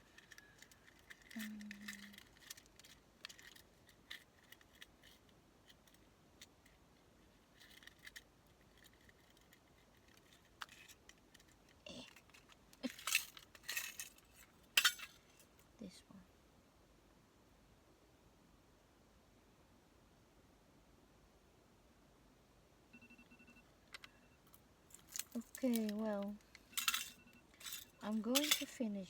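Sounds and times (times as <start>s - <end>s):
light clicks and scratches: 0.0s - 15.7s, 23.9s - 29.0s.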